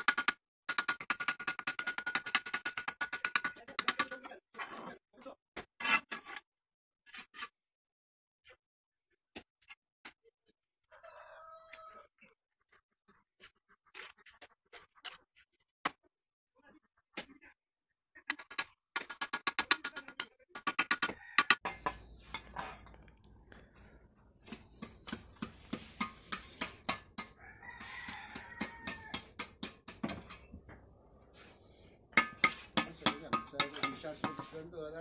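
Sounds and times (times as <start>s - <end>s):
rapid scraping and clicking: 0.0s - 4.2s, 18.3s - 21.6s
rooster crowing: 10.9s - 12.1s, 27.2s - 29.5s.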